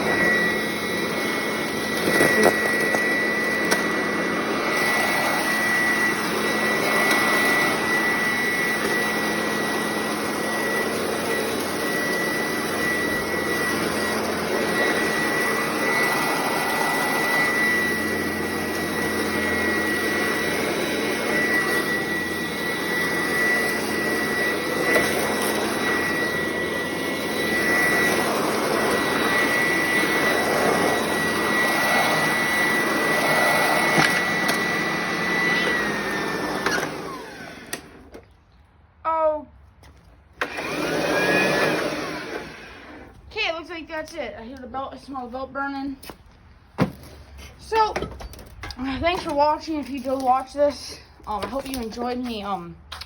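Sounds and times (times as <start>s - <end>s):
vacuum cleaner running: 0.0s - 38.3s, 40.3s - 44.0s.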